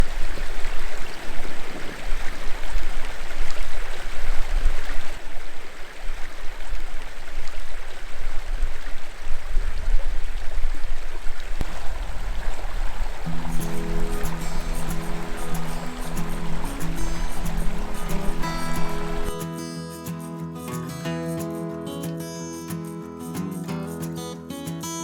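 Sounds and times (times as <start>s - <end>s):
running water rushing: 0.0s - 19.8s.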